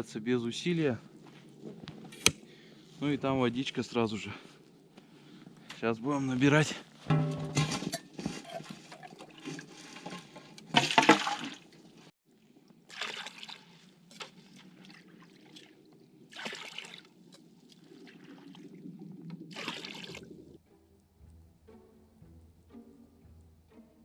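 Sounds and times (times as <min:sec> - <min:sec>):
water splashing into bucket: 0:07.1 - 0:11.9, 0:12.8 - 0:20.5
stream trickling: 0:07.1 - 0:21.4.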